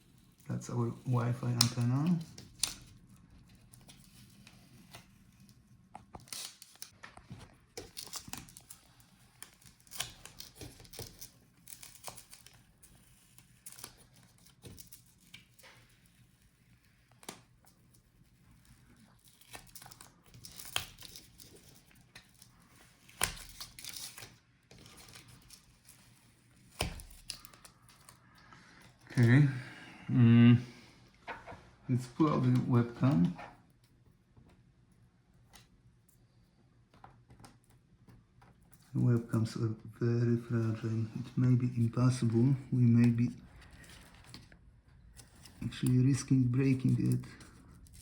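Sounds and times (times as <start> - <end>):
plastic tearing and crinkling: 0.0 - 28.3, 40.6 - 48.0.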